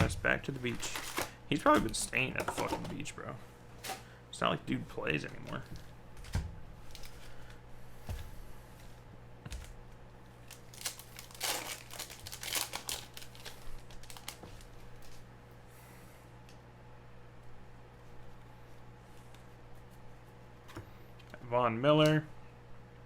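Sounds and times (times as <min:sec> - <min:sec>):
foil wrappers crinkling and tearing: 0:00.0 - 0:02.7, 0:06.8 - 0:07.6, 0:09.6 - 0:15.3
low steady hum: 0:00.0 - 0:23.0.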